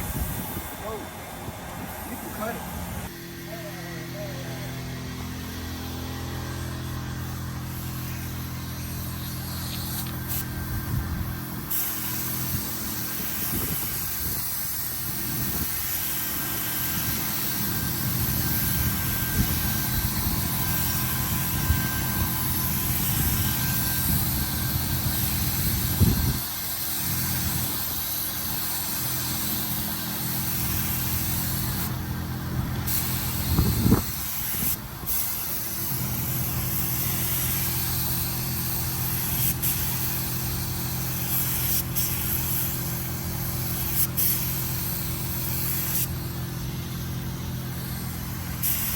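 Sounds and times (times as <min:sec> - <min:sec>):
low machine hum: 0:00.0 - 0:13.7
spray gun hissing: 0:05.4 - 0:48.9.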